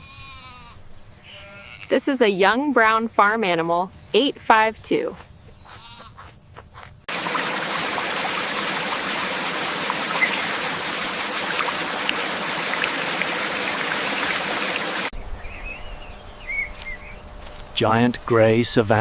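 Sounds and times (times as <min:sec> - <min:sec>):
rushing water: 0:07.1 - 0:15.1.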